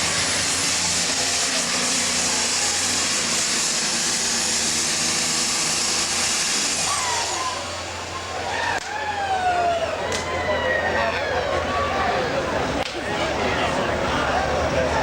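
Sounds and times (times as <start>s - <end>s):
tractor diesel engine roaring: 0.0s - 15.0s
high turbo whistle: 0.1s - 9.4s.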